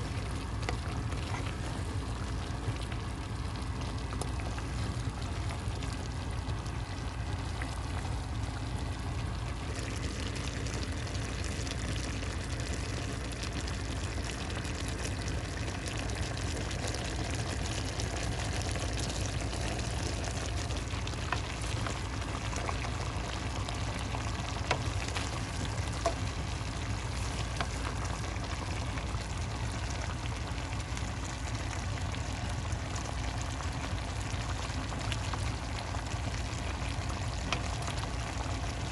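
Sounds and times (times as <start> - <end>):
food sizzling in a pan: 9.6 - 32.0.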